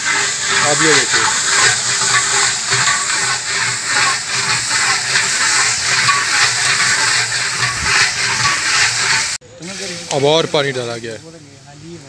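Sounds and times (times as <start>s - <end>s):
meat sizzling in hot oil: 0.0s - 9.4s
spatula stirring in pot: 0.0s - 9.4s.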